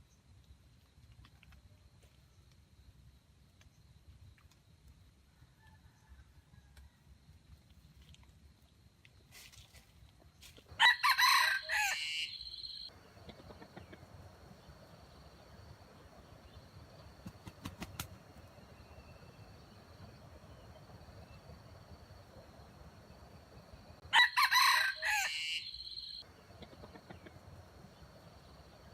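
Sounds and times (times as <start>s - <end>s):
rooster crowing: 10.8s - 12.9s, 24.0s - 26.2s.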